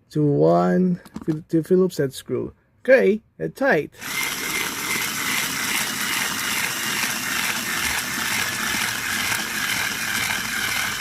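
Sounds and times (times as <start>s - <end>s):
electric screwdriver whirring: 4.0s - 11.0s.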